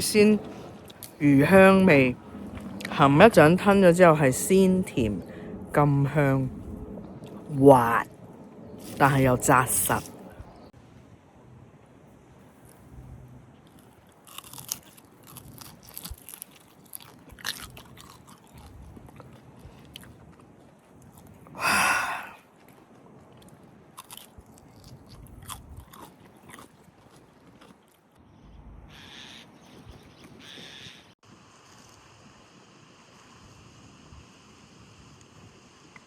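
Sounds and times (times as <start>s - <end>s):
crunchy clicks: 13.6s - 21.4s
person chewing fish: 13.7s - 28.2s.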